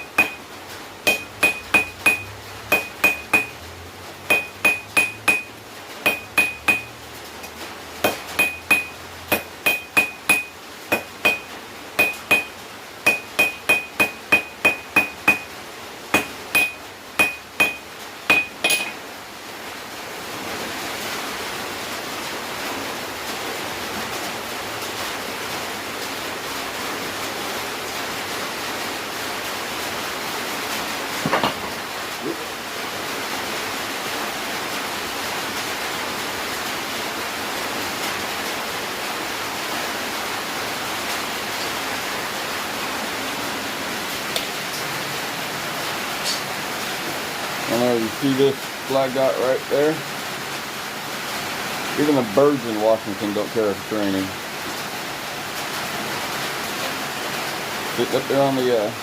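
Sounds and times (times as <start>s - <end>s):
hammer ringing on anvil: 0.0s - 0.4s, 1.1s - 3.6s, 4.3s - 5.5s, 6.1s - 6.9s, 8.0s - 15.5s, 16.2s - 19.0s
falling rain hiss: 0.0s - 59.0s.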